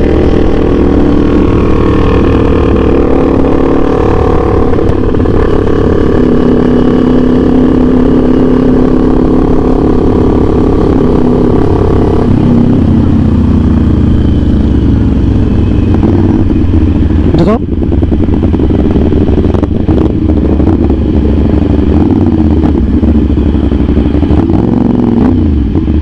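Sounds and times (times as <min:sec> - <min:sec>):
wind rush on microphone: 0:00.0 - 0:14.2, 0:14.9 - 0:26.0
motorcycle engine running: 0:00.0 - 0:26.0.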